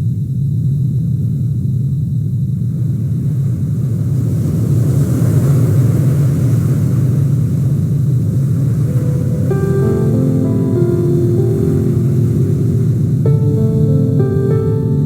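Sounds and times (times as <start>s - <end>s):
sustained music notes: 8.8s - 15.0s.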